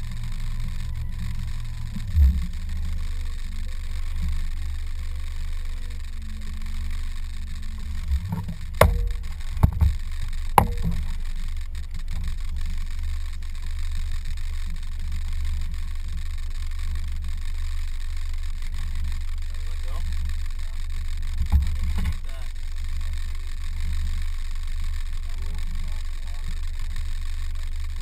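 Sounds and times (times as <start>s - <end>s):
boat motor humming: 0.0s - 28.0s
sharp knocks: 7.9s - 11.3s.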